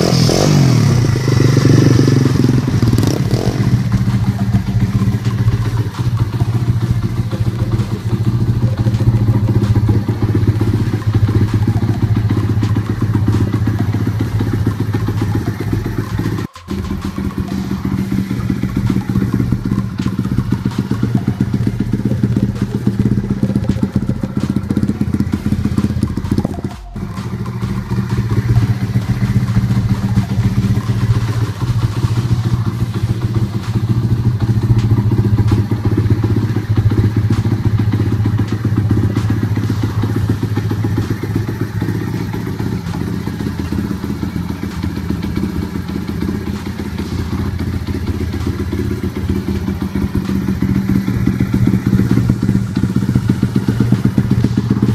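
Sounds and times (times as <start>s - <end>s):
dirt bike engine running: 0.0s - 54.9s.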